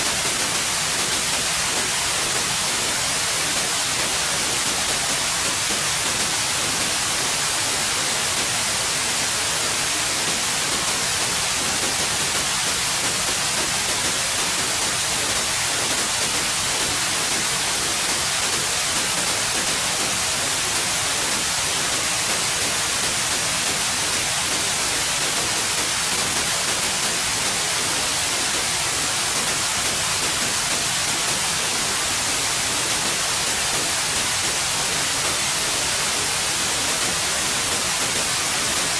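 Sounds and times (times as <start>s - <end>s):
steady white noise hiss: 0.0s - 38.9s.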